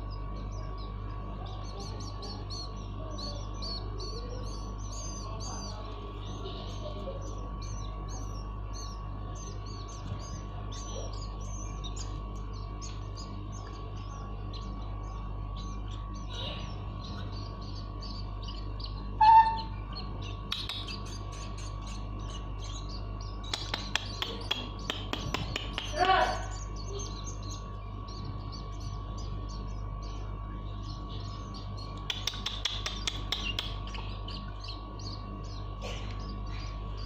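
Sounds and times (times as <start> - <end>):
bird chicks chirping: 0.0 - 37.0
electrical hum: 0.0 - 37.0
loud low squeak: 19.2 - 19.8.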